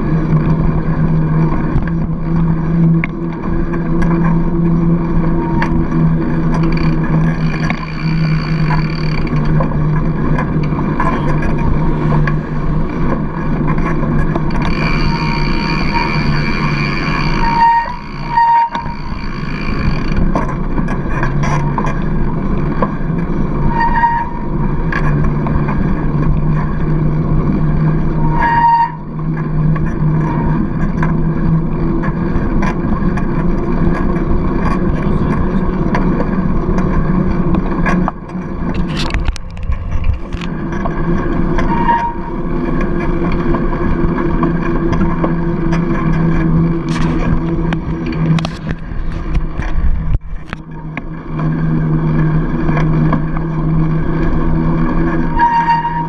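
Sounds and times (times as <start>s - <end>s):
tyre road noise: 0.0s - 56.0s
high squeaks: 14.5s - 20.2s, 41.6s - 42.6s, 55.3s - 56.0s
wind rushing over camera: 29.7s - 55.4s.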